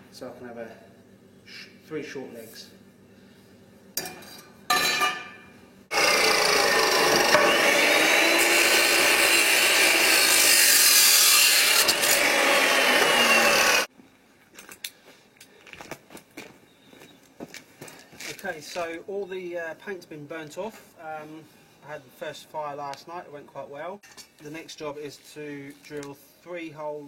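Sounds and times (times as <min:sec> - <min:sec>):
power tool cutting steel tube: 0:05.9 - 0:13.9.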